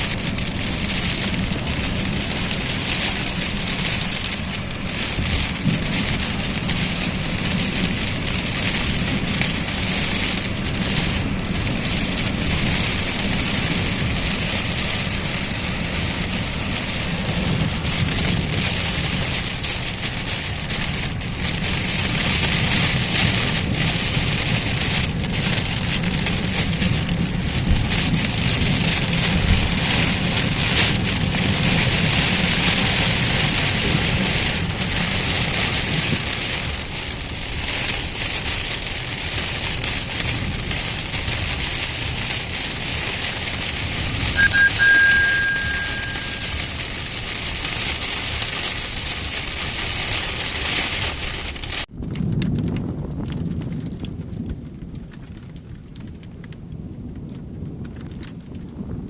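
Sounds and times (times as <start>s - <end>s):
heavy rain pouring: 0.0s - 44.4s, 45.0s - 51.9s
strong wind rumble: 51.9s - 59.0s.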